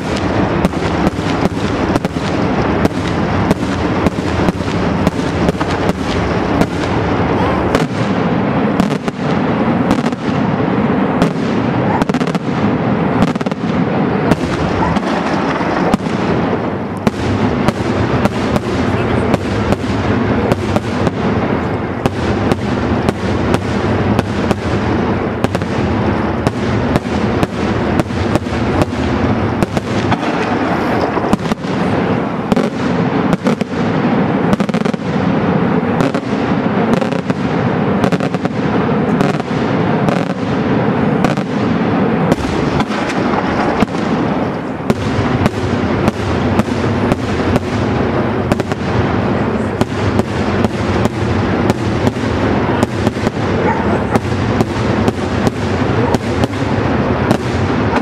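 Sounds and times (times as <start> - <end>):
fireworks shell bursts and bangs: 14.3 - 20.0, 22.0 - 33.8, 39.2 - 48.8.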